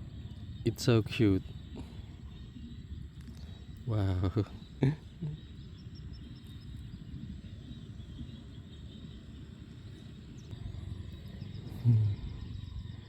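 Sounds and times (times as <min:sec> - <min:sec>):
high ticking chirps: 0:00.0 - 0:13.0
wind noise on microphone: 0:04.5 - 0:13.0.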